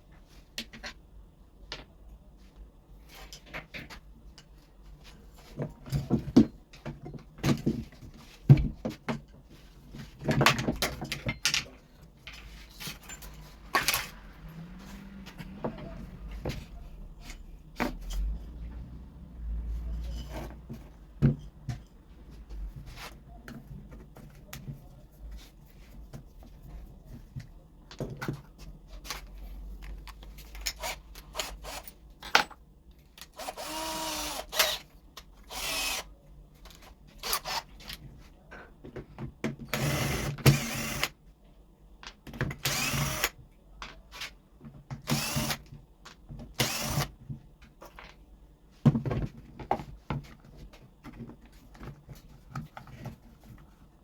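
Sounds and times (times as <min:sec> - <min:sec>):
tools and parts clicking: 0:29.1 - 0:36.1.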